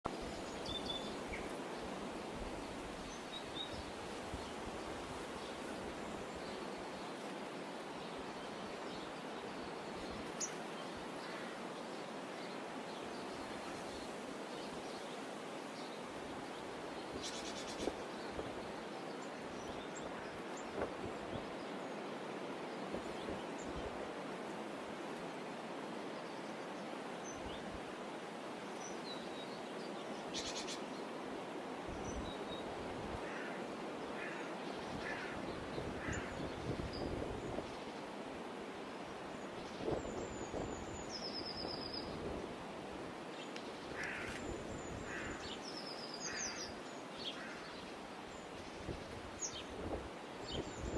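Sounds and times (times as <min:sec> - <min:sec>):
steady rushing hiss: 0:00.1 - 0:50.9.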